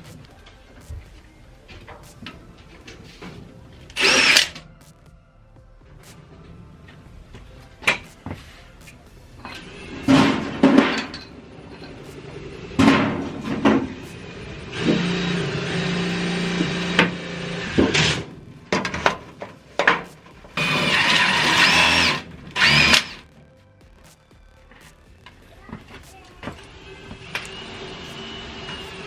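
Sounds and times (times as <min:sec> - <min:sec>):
power drill running: 0:20.6 - 0:23.2.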